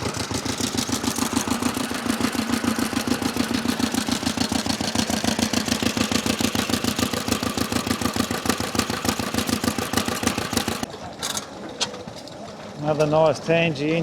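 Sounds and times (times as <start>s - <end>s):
stationary engine running: 0.0s - 10.9s.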